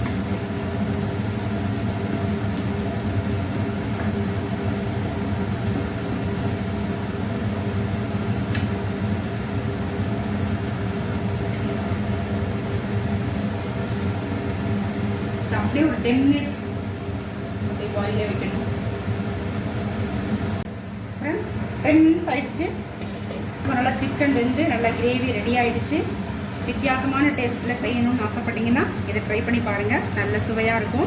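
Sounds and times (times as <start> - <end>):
appliance fan hum: 0.0 - 31.0.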